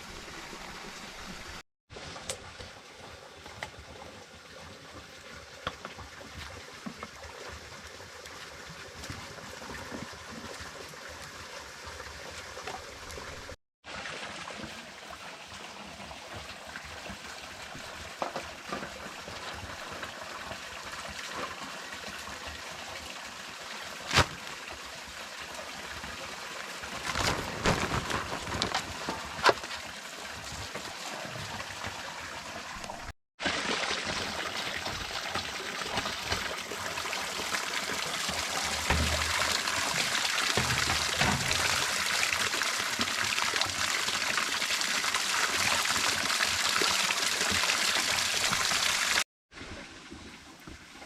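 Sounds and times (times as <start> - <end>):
water trickling: 34.0 - 49.0.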